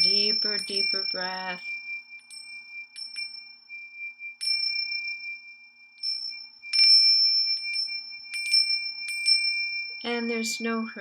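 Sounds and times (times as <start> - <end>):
chimes ringing: 0.0 - 11.0.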